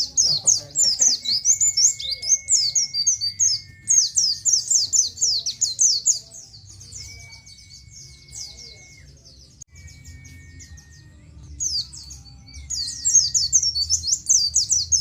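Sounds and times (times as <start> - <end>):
bird chattering high chirps: 0.0 - 9.2.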